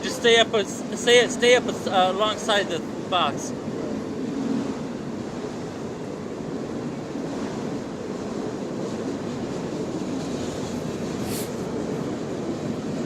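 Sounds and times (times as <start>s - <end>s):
freight train rumbling past: 0.0s - 13.0s
brief hiss: 11.2s - 11.7s.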